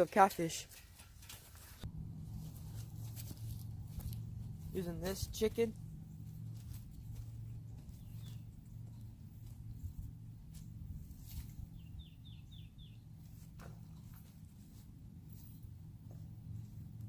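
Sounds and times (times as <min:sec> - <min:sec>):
steady low hum: 0:00.6 - 0:17.0
bird chirping: 0:06.0 - 0:10.1, 0:11.6 - 0:13.4.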